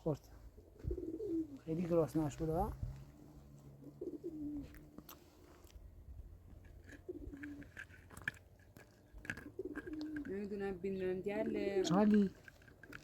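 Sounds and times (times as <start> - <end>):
dove cooing: 0.4 - 5.5, 6.6 - 7.9, 9.1 - 13.0.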